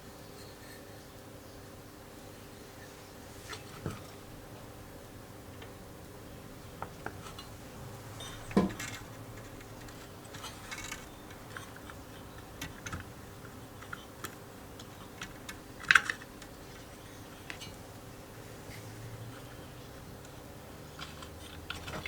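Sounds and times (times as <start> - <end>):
metal parts and tools clinking: 7.2 - 17.8.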